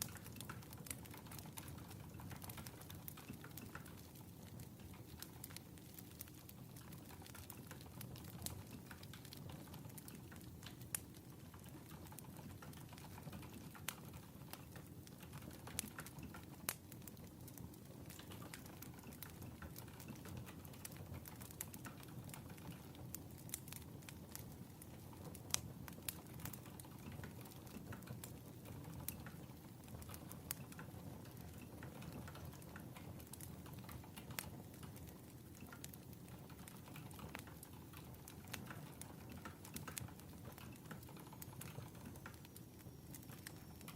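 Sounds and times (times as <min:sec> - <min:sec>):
fire pops and snaps: 0:00.0 - 0:43.9
low steady fire rumble: 0:00.0 - 0:43.9.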